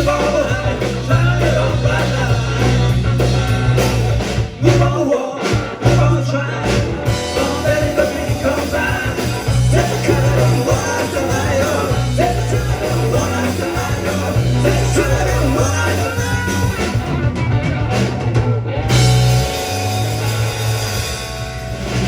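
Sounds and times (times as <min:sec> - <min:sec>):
person singing: 0:00.0 - 0:03.0, 0:04.6 - 0:17.0
rock band playing live: 0:00.0 - 0:22.0
loud guitar chord: 0:17.2 - 0:22.0.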